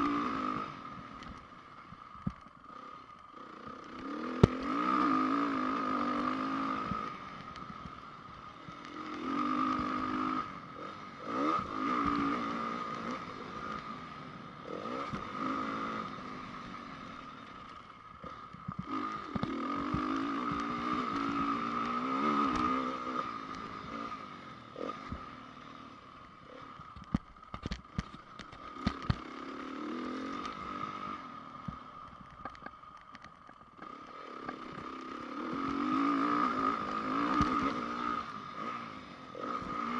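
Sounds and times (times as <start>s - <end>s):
motocross engine revving: 2.8s - 7.2s, 8.9s - 17.2s, 18.2s - 25.3s, 33.8s - 39.9s.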